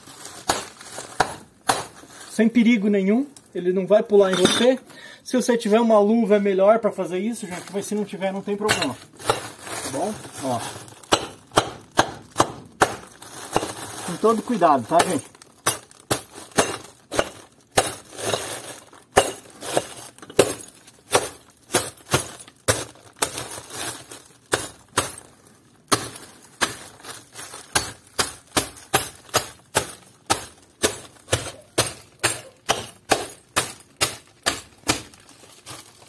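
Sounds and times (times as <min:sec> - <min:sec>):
glass bottles smashing: 0:08.6 - 0:36.0.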